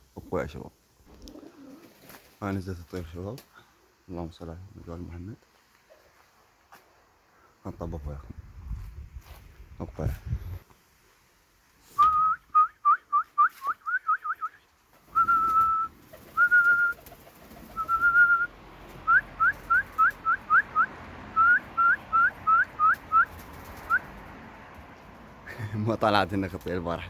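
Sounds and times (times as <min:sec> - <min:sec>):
person whistling chirps: 0:12.0 - 0:14.6, 0:15.2 - 0:17.0, 0:17.8 - 0:18.5.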